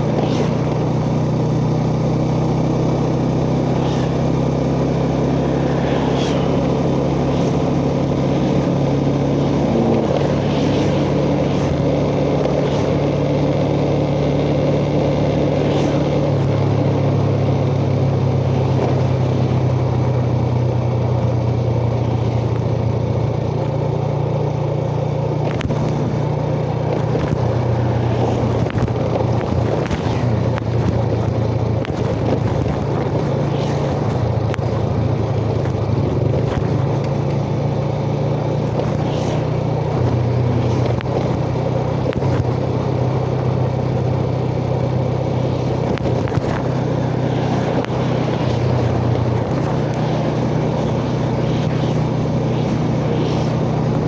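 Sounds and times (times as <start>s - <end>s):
motorcycle engine running: 0.0s - 54.0s
road noise: 0.0s - 54.0s
wind noise: 25.4s - 37.5s, 45.3s - 54.0s.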